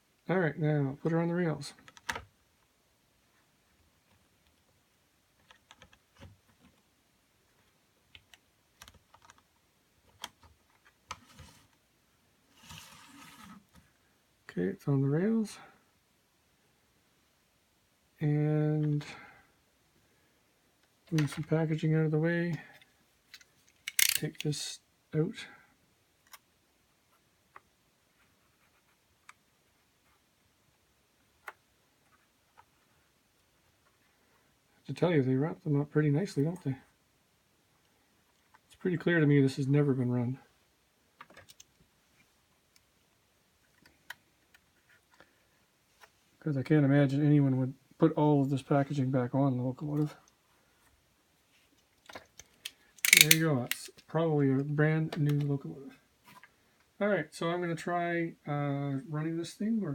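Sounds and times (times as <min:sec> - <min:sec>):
plastic model train clicking: 0:23.8 - 0:24.5, 0:52.4 - 0:53.9.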